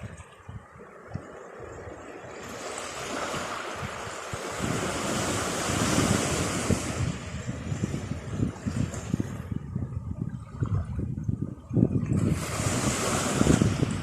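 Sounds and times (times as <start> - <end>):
wind gusting on microphone: 0.0 - 14.0
wave breaking: 1.1 - 9.6, 11.9 - 14.0.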